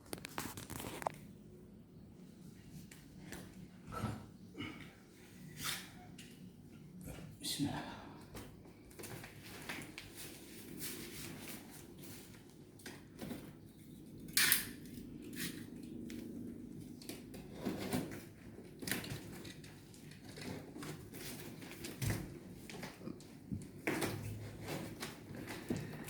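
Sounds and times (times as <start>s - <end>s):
cardboard and packing rustles: 0.0s - 1.3s, 8.6s - 13.6s, 17.2s - 26.0s.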